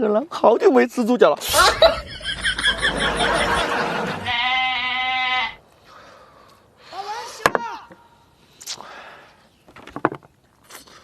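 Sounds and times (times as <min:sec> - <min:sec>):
trembling bleat: 0:04.1 - 0:05.6.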